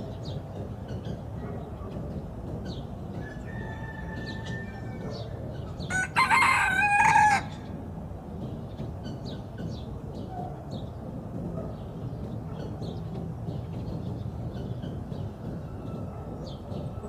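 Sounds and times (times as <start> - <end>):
rooster crowing: 3.3 - 5.2, 5.9 - 7.6.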